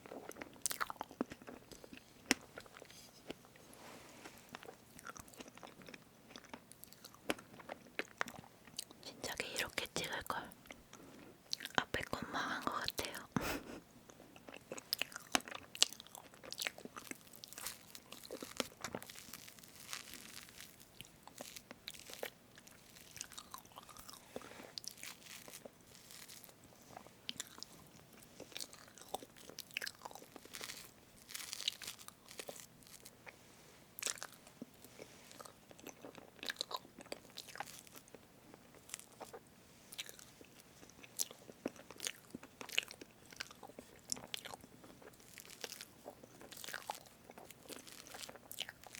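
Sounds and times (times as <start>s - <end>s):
wet sticky chewing: 14.1s - 33.3s, 34.0s - 48.9s.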